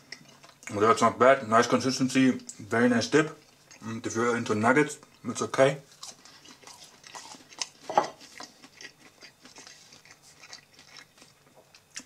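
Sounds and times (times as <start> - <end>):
person chewing crunchy food: 0.0 - 0.9, 3.4 - 4.1, 5.0 - 12.0.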